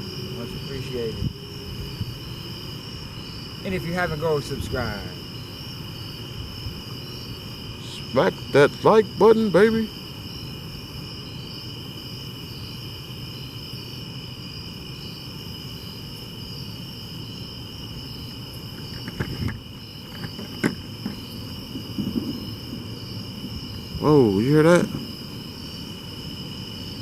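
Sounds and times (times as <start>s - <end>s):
crickets trilling: 0.0s - 27.0s
dull knocks: 18.8s - 23.6s.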